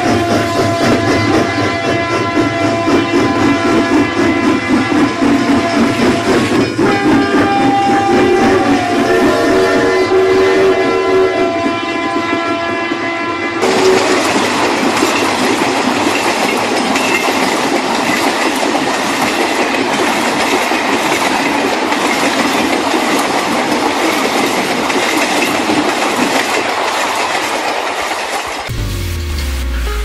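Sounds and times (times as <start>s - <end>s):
electronic toy train horn: 0.0s - 14.3s
toy train rattling along track: 13.6s - 28.7s.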